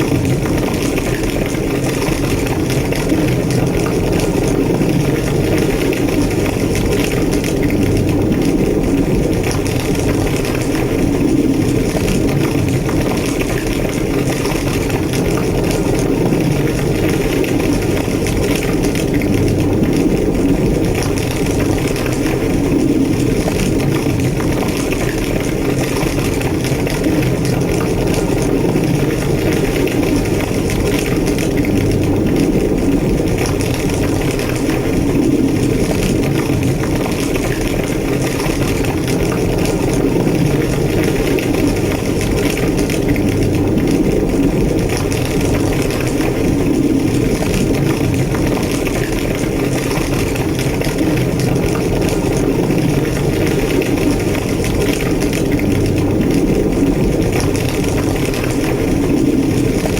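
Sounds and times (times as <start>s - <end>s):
fire crackling and popping: 0.0s - 59.9s
fire roaring: 0.0s - 59.9s.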